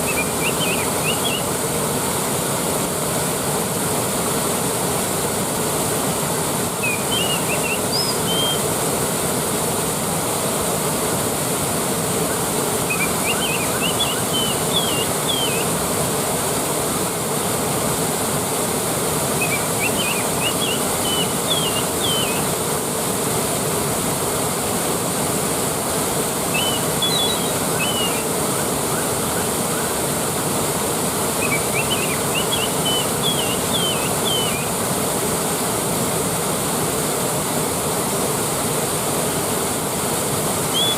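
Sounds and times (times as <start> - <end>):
waterfall rushing: 0.0 - 40.9
quick high chirping: 6.8 - 8.6, 19.4 - 22.4, 26.5 - 29.1, 31.4 - 34.7.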